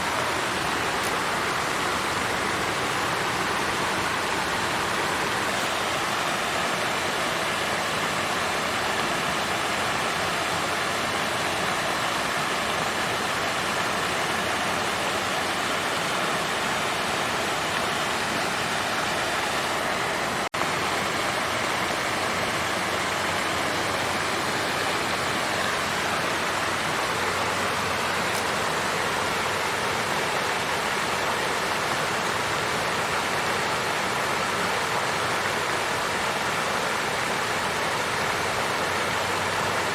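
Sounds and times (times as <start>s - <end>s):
fountain water flowing: 0.0s - 39.9s.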